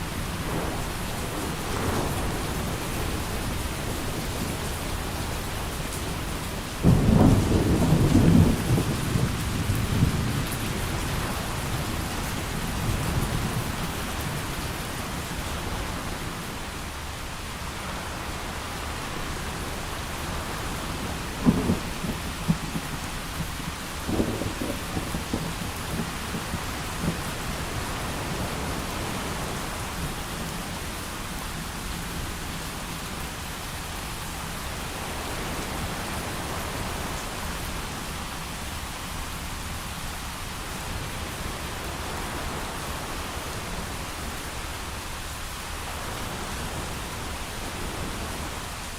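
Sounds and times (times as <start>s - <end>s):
heavy rain: 0.0s - 48.9s
thunder cracking and rumbling: 0.2s - 16.0s, 20.0s - 30.6s.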